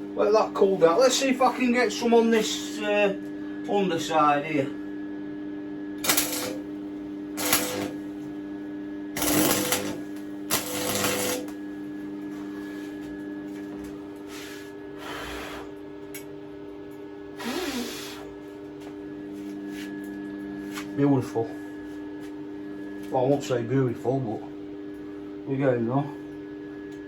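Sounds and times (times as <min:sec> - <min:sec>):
electrical hum: 0:00.0 - 0:27.0
welding arc crackling: 0:06.0 - 0:06.7, 0:07.4 - 0:08.2, 0:09.2 - 0:11.6.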